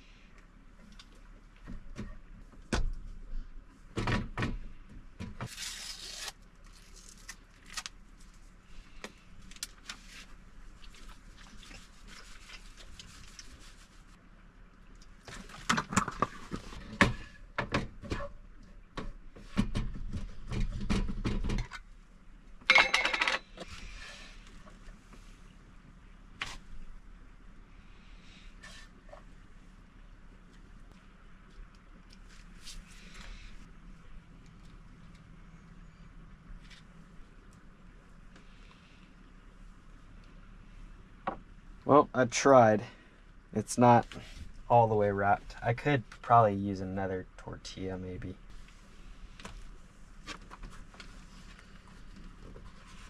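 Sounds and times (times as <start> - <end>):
food wrap rustling: 5.5 - 8.6.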